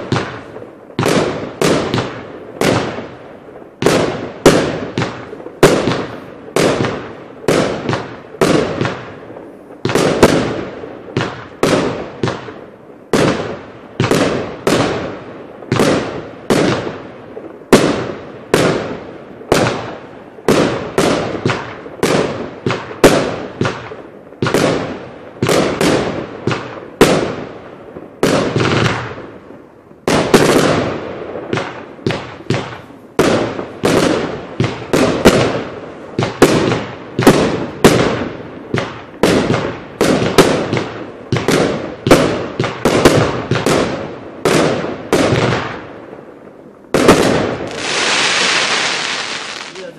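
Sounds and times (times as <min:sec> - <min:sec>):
firework cake bangs: 0:47.0 - 0:49.9.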